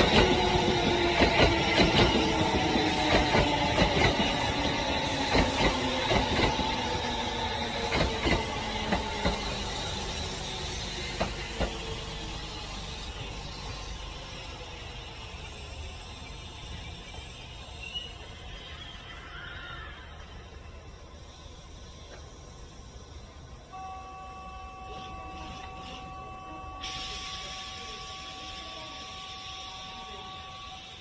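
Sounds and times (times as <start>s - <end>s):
train wheels clicking over rail joints: 0.0s - 15.8s
rail rumble: 0.0s - 31.0s.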